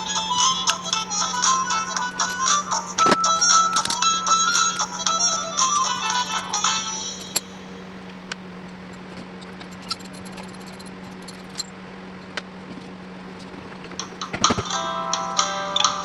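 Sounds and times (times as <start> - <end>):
music track: 0.0 - 8.0, 14.0 - 16.0
low steady hum: 0.0 - 11.7.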